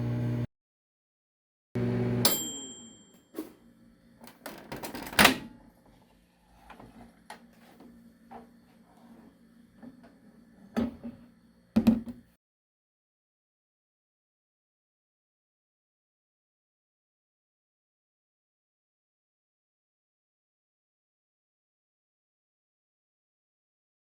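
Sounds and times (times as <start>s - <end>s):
microwave oven running: 0.0s - 0.5s, 1.8s - 3.1s
microwave beep: 1.8s - 3.2s.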